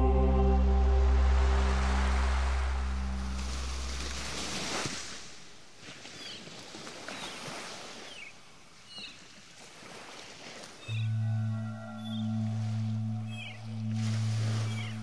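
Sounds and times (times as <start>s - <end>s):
low musical drone: 0.0s - 4.6s, 10.9s - 15.0s.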